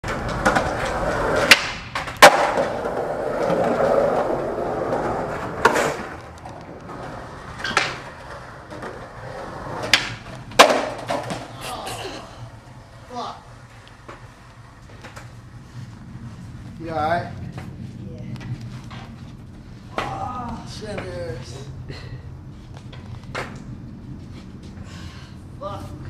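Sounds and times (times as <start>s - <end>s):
skateboard clacking on ground: 0.0s - 11.6s, 12.8s - 15.6s, 16.8s - 21.5s
skateboard wheels rolling on pavement: 0.0s - 26.0s.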